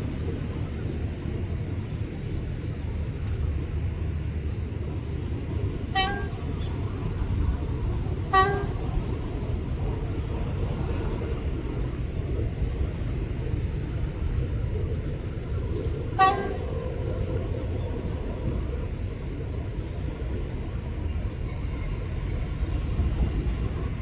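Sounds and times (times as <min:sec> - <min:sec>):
diesel locomotive engine rumbling: 0:00.0 - 0:24.0
train horn toots: 0:05.9 - 0:07.0, 0:08.1 - 0:09.3, 0:16.2 - 0:17.0.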